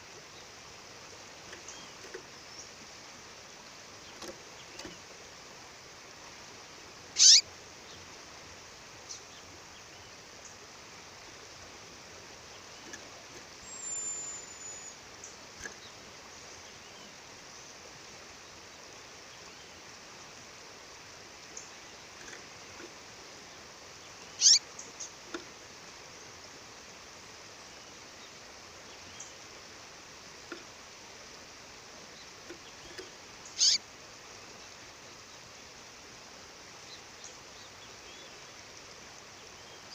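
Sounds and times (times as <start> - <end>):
bird calls sweeping downward: 7.2 - 7.4, 24.4 - 24.6, 33.6 - 33.8.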